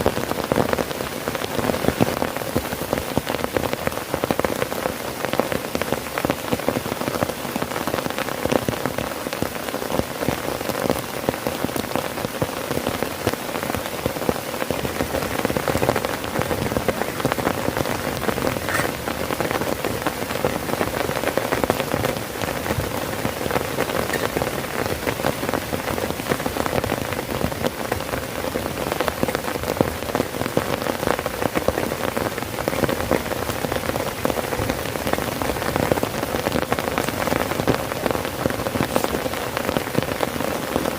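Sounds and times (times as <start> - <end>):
heavy rain on tent fabric: 0.0 - 40.9.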